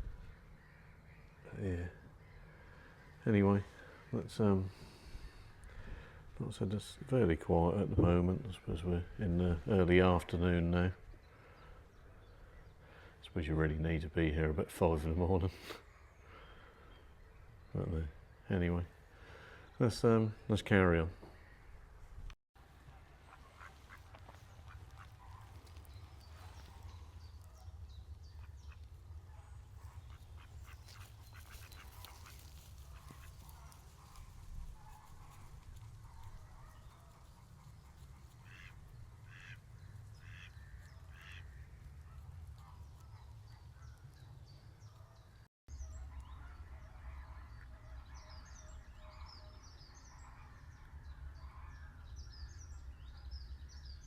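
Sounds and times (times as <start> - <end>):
ducks and geese calling: 0.0 - 13.2, 22.9 - 45.2, 45.9 - 53.5
small birds chirping: 0.0 - 22.3, 23.0 - 54.0.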